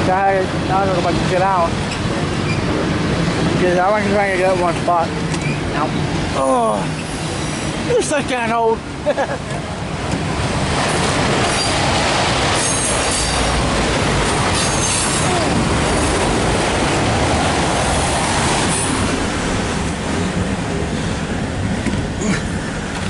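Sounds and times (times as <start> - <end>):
train wheels rumbling on rails: 0.0 - 23.0
high-pitched wheel squeals: 12.6 - 13.4, 14.6 - 15.4.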